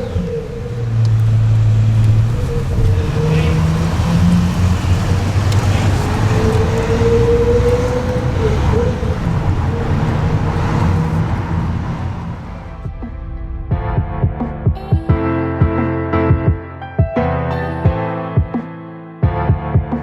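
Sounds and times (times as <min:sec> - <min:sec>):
car engines in traffic: 0:00.0 - 0:13.7
road noise: 0:00.0 - 0:14.8.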